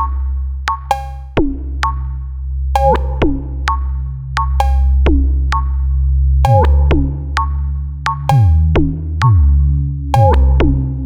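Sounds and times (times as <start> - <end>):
deep bass: 0.0 - 11.0
electronic synthesizer music: 0.0 - 11.0
sharp hits with falling pitch: 8.1 - 9.4, 10.2 - 11.0.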